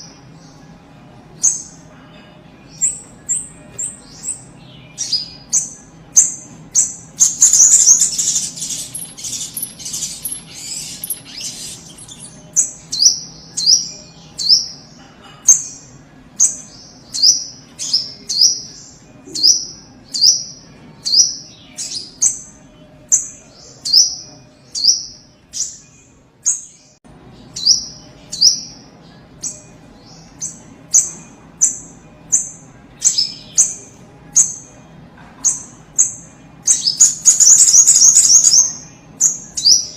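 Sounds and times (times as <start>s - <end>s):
bird harsh chattering: 7.2s - 12.4s.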